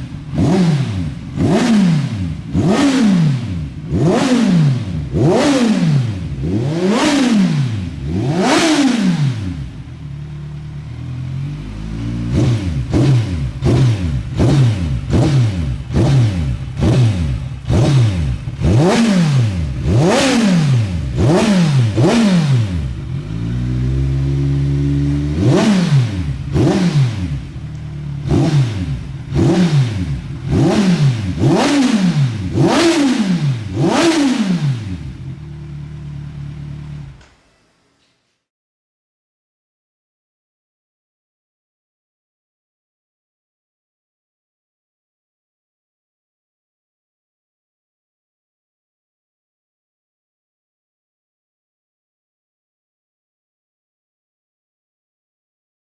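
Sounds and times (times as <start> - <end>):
motorcycle engine revving: 0.0 - 37.3
motorcycle engine idling: 9.4 - 18.6, 22.6 - 25.4, 26.1 - 31.4, 34.9 - 37.3.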